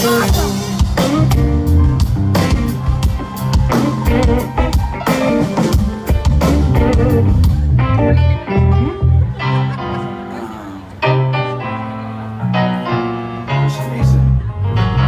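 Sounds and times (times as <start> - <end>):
bass notes: 0.0 - 9.7, 11.0 - 15.0
electric guitar: 0.0 - 11.8.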